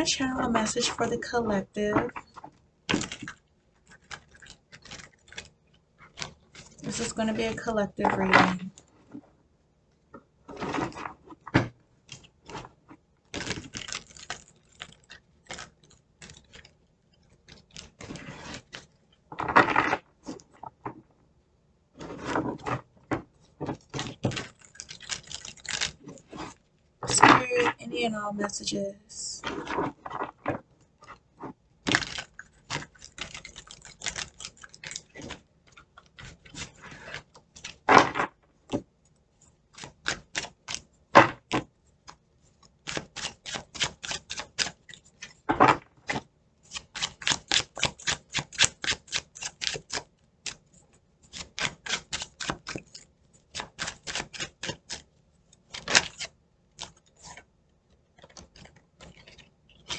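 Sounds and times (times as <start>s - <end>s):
cards being shuffled: 10.5s - 21.0s, 29.5s - 38.3s, 39.7s - 50.6s, 51.3s - 57.5s, 58.2s - 59.9s.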